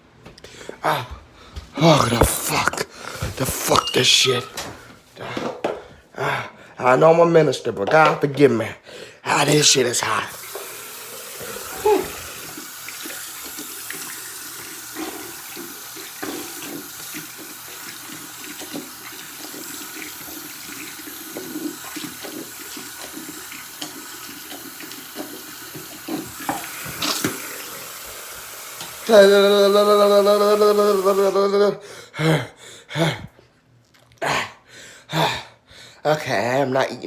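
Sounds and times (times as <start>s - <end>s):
tap water running into sink: 9.4s - 31.3s.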